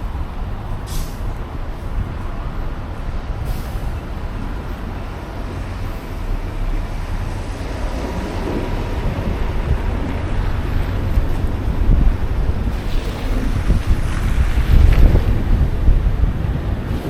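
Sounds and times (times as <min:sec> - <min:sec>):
heavy vehicle rumbling: 0:00.0 - 0:17.0
street traffic: 0:00.0 - 0:17.0
brief high hiss: 0:00.9 - 0:01.2.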